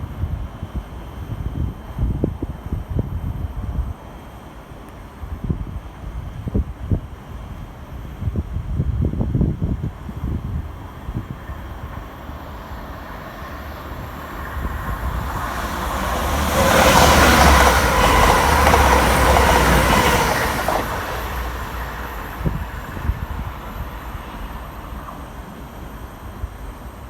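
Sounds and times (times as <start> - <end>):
train passing on rails: 0.0 - 27.0.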